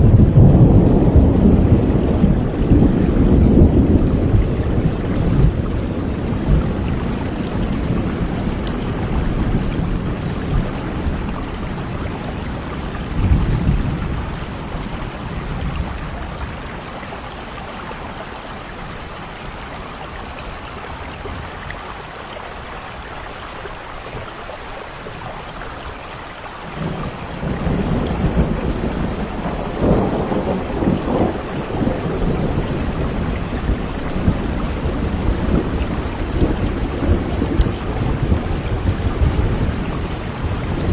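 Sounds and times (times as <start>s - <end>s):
rolling thunder: 0.0s - 17.2s, 26.6s - 40.9s
heavy rain: 0.0s - 40.9s.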